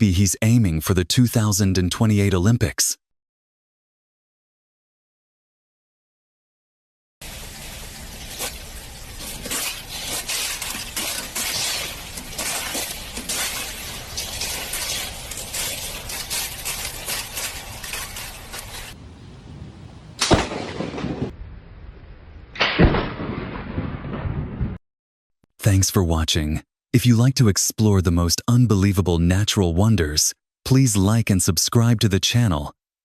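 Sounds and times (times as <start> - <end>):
dense crackling and crashing: 7.2 - 19.0, 20.2 - 21.4.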